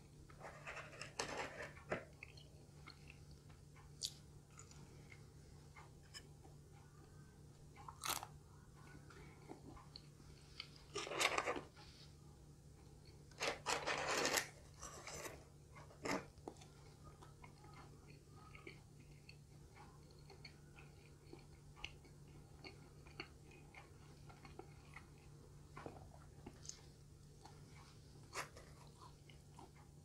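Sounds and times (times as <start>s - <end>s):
chewing with mouth clicks: 2.0s - 5.2s, 15.8s - 30.0s.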